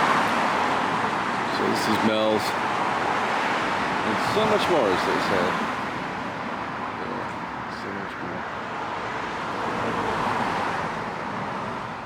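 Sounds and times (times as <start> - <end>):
car passing: 0.0 - 12.0
city street traffic: 0.0 - 12.0.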